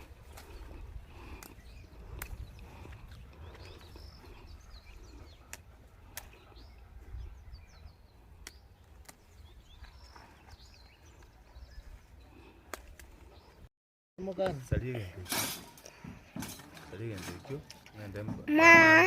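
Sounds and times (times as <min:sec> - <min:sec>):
small birds chirping: 0:00.0 - 0:13.7.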